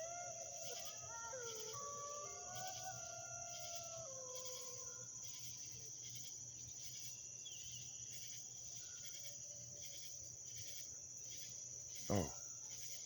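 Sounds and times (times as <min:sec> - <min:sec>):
distant canids howling: 0:00.0 - 0:05.9
high insect trill: 0:00.0 - 0:13.0.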